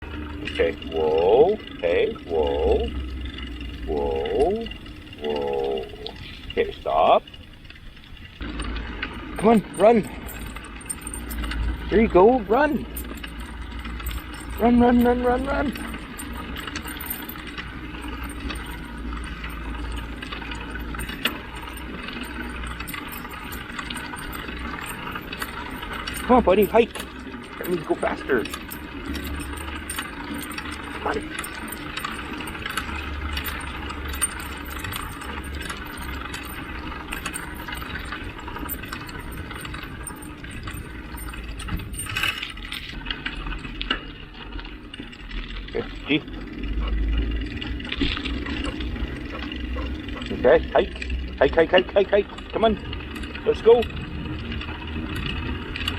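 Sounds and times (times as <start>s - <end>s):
bicycle rattling: 0.0s - 55.9s
wind rumble on microphone: 52.8s - 55.9s.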